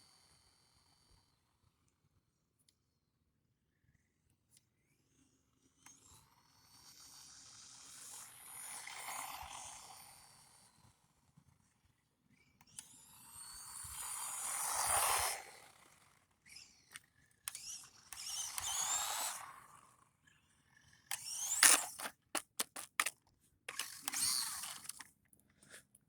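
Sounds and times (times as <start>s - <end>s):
toy car motor whining: 12.7s - 20.0s, 21.1s - 23.1s, 23.7s - 25.1s.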